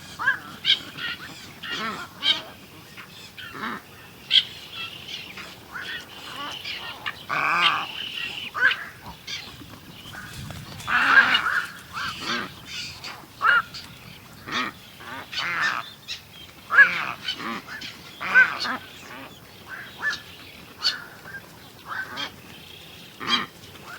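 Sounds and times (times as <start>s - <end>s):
birds calling short sharp calls: 0.0s - 23.9s.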